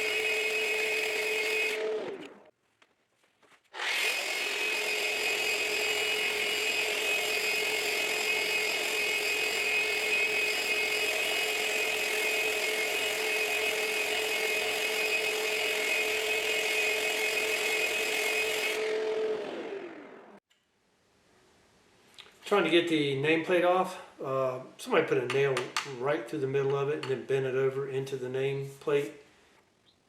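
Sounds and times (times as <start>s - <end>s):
electric sander running on wood: 0.0s - 2.5s, 3.8s - 20.4s.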